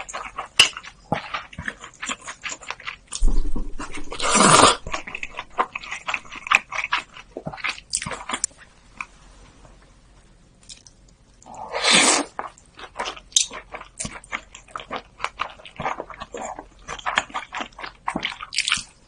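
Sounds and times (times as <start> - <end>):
chewing with wet mouth clicks: 0.0 - 3.2, 12.4 - 19.0
rushing noise: 3.2 - 5.3.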